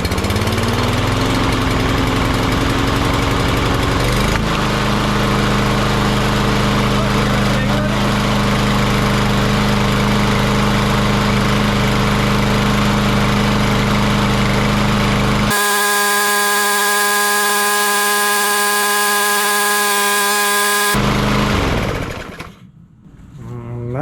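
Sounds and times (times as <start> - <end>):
lawn mower engine running: 0.0 - 22.5
steady high-pitched tones: 15.5 - 21.0.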